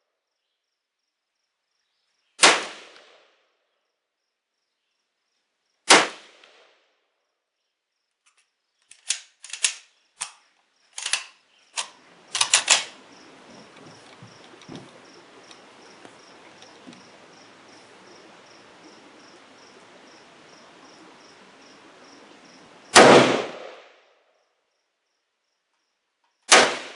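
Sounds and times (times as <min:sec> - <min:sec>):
insects chirping faintly: 0:00.0 - 0:26.7
rifle shots with echo: 0:02.4 - 0:03.2, 0:05.9 - 0:06.6, 0:23.0 - 0:24.0, 0:26.5 - 0:26.9
metallic clicks and clacks: 0:11.0 - 0:12.9.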